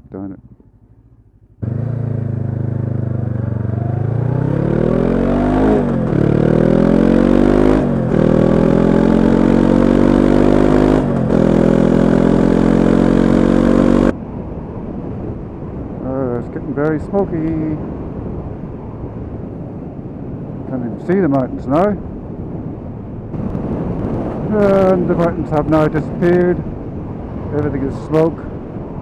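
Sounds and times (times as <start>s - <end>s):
motorcycle engine accelerating: 0.4s - 14.2s, 23.3s - 26.7s.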